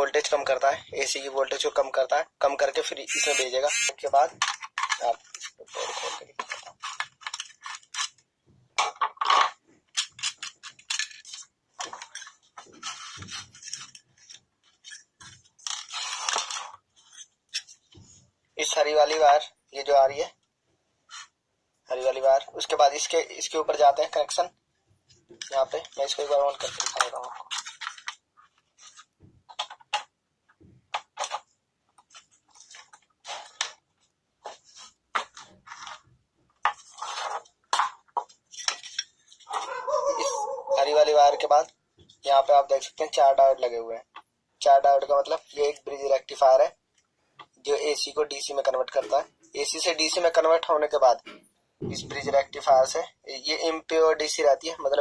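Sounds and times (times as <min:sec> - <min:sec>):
handling clicks and scraping: 0:04.0 - 0:19.3, 0:22.6 - 0:44.3.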